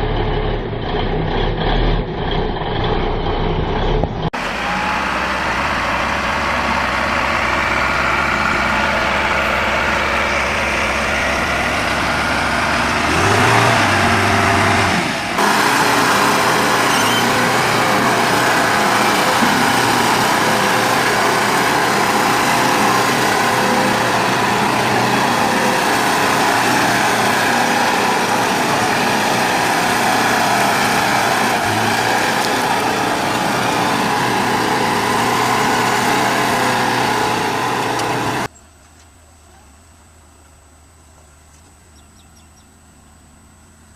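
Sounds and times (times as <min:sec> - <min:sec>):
excavator engine running: 0:00.0 - 0:43.9.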